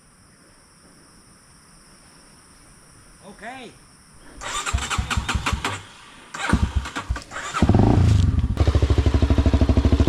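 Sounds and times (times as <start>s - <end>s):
motorcycle engine starting and running: 4.4s - 10.0s.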